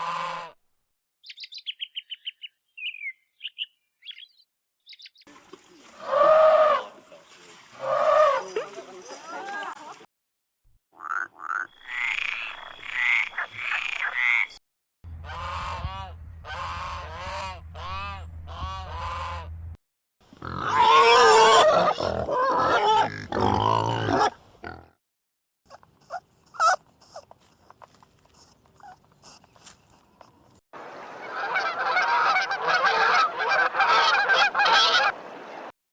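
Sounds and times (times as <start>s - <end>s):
low hum: 15.1s - 19.8s
animal calls: 20.4s - 23.4s, 25.7s - 30.6s.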